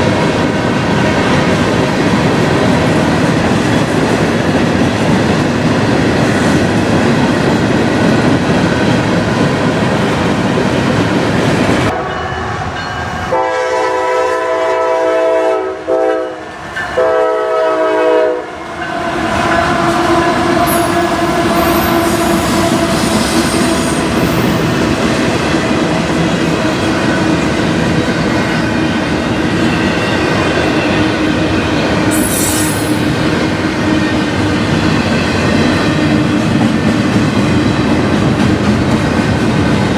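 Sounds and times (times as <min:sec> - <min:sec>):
locomotive air horn blasts: 0:13.3 - 0:24.3
train wheels clattering on rail: 0:18.7 - 0:39.9.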